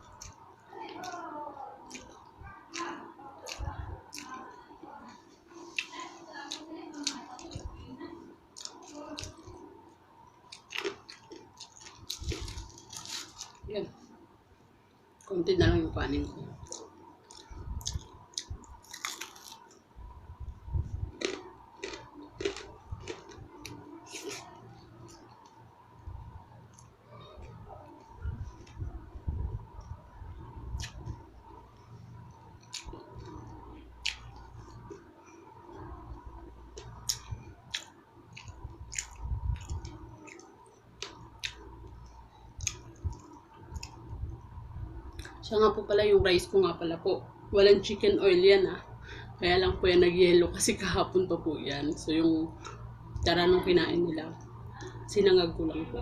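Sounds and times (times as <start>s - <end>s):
chewing and crunching food: 0.0s - 9.7s, 10.3s - 13.7s, 16.2s - 19.9s, 20.8s - 25.6s, 29.8s - 44.2s
mouth clicks and crunches: 16.6s - 19.8s, 21.1s - 25.6s, 30.7s - 31.2s, 32.6s - 35.0s, 36.7s - 44.0s.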